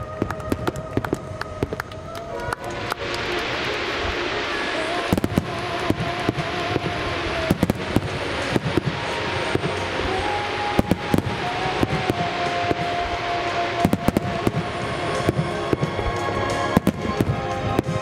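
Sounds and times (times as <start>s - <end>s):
fireworks bangs: 0.0s - 18.0s
fireworks crackling: 0.0s - 18.0s.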